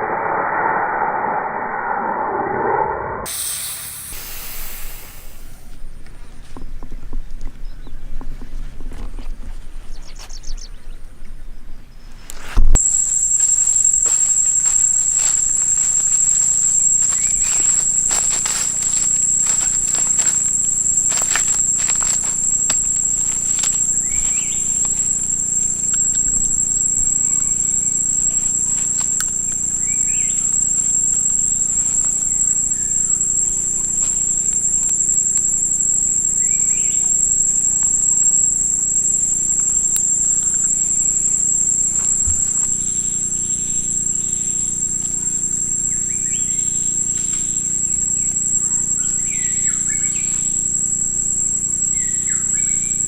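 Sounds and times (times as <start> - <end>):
insects chorus: 0.0 - 8.6, 11.6 - 53.0
bird chirps: 12.8 - 34.2, 36.3 - 37.2, 41.9 - 50.7, 51.9 - 53.0.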